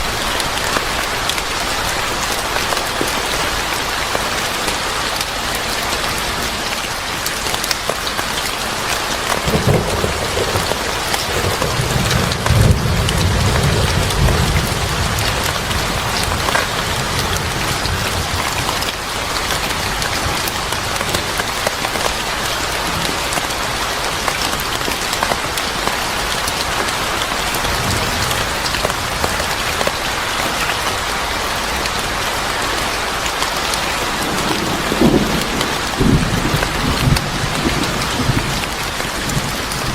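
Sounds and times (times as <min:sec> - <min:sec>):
heavy rain falling: 0:00.0 - 0:39.9
thunder rolling: 0:09.4 - 0:18.8, 0:34.2 - 0:39.9.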